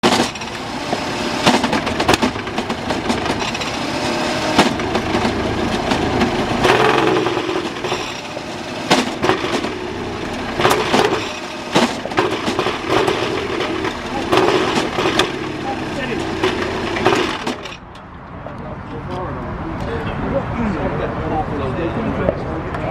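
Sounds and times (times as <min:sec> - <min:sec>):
race engine running unevenly: 0:00.0 - 0:17.8
sharp engine cracks: 0:00.0 - 0:18.1.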